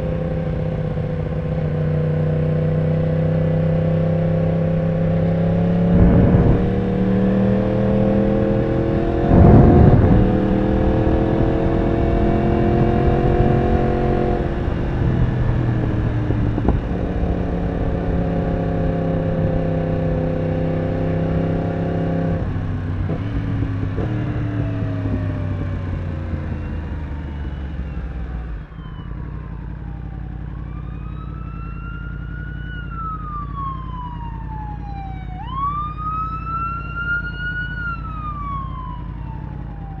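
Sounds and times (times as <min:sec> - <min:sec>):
emergency siren wailing: 0:00.0 - 0:40.0
motorcycle engine cruising: 0:00.0 - 0:40.0.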